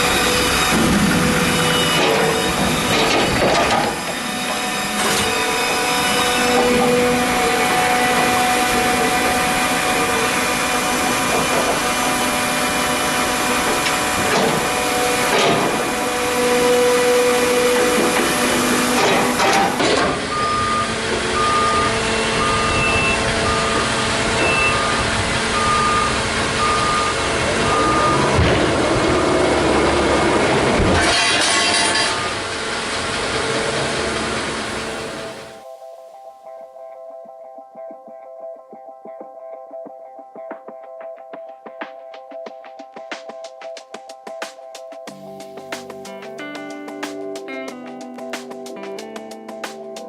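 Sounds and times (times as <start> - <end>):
vehicle reversing alarm beeping: 0.0 - 30.2, 31.7 - 32.6
heavy sawmill machinery running: 0.0 - 35.6.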